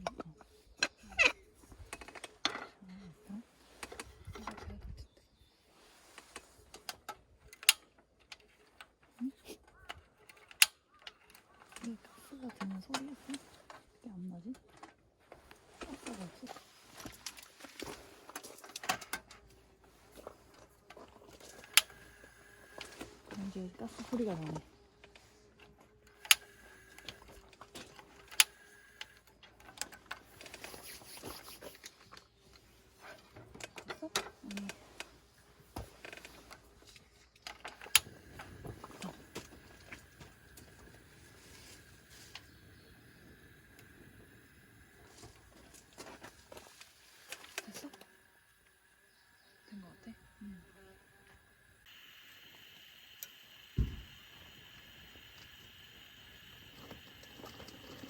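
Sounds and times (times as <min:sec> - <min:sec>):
piezo igniter clicks: 0:21.6 - 0:23.0, 0:26.1 - 0:27.3, 0:51.9 - 0:57.8
faint hiss of gas: 0:37.8 - 0:58.0.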